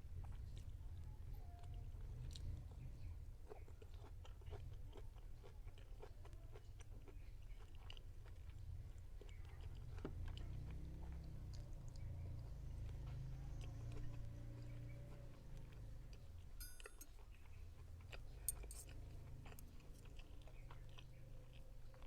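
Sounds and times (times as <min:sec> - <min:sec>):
person chewing food: 0:00.1 - 0:22.0
low steady hum: 0:11.5 - 0:22.0.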